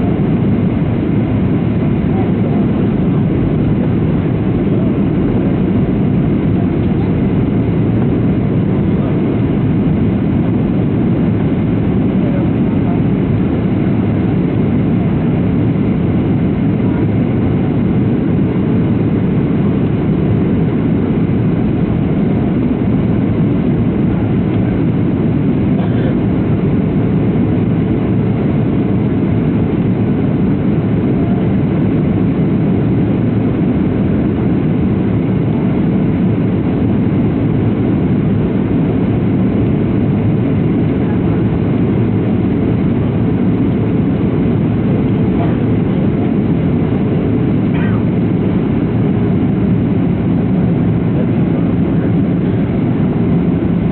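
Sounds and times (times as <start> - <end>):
jet engine cabin drone: 0.0 - 53.9.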